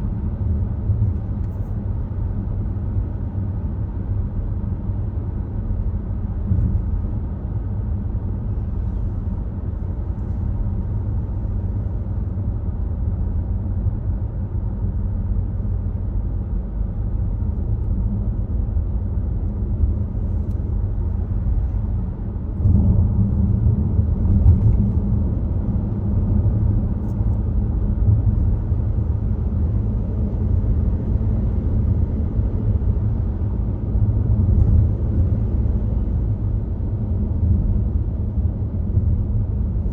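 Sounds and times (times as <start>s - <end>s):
car tyre and engine rumble: 0.0s - 39.9s.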